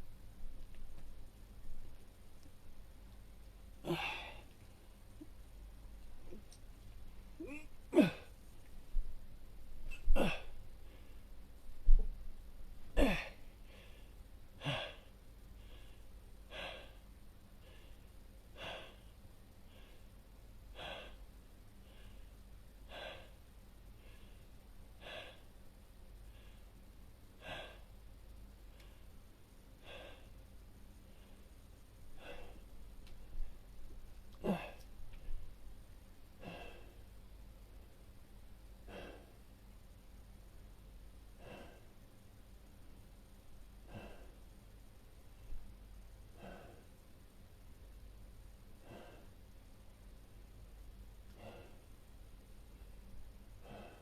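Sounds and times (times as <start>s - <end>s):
breathing close to microphone: 48.8s - 49.4s, 51.3s - 51.9s, 53.5s - 54.0s.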